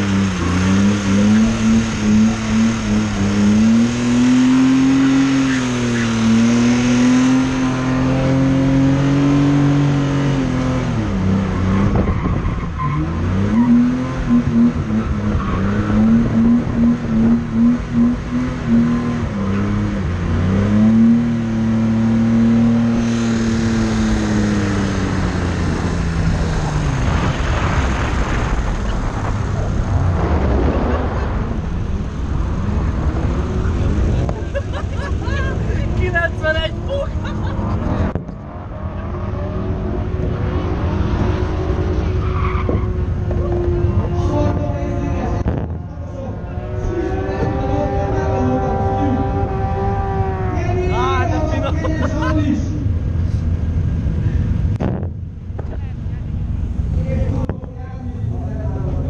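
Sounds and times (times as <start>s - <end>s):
car engine revving: 0.0s - 59.0s
tyre and wind noise: 10.9s - 13.1s, 54.6s - 55.9s.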